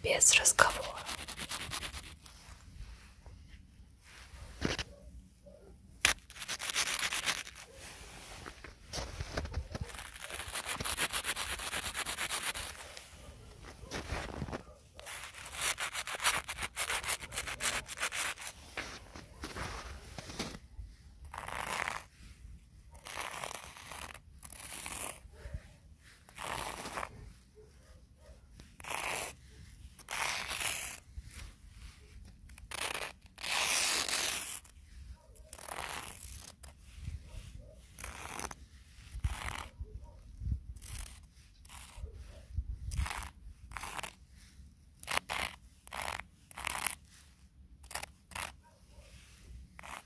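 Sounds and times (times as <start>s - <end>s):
footsteps crunching through snow: 6.4s - 11.0s, 12.5s - 15.2s, 17.9s - 20.8s.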